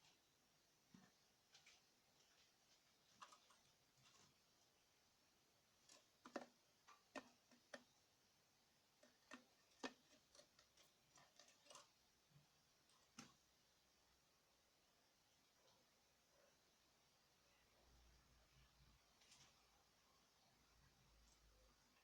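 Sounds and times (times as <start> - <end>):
bird clicking and tapping in cage: 9.0 - 11.9.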